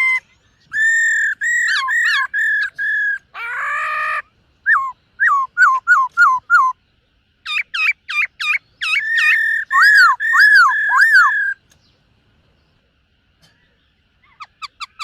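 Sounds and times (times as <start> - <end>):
bird singing whistled phrases: 0.0 - 3.3, 3.9 - 6.8, 7.5 - 11.6.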